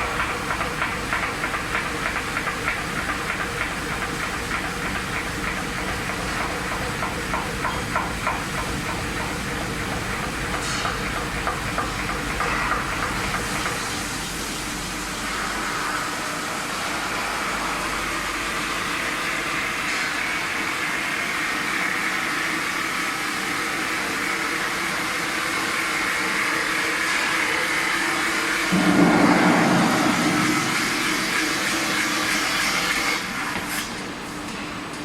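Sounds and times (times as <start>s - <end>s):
metal spinning machine whirring: 28.6s - 33.3s.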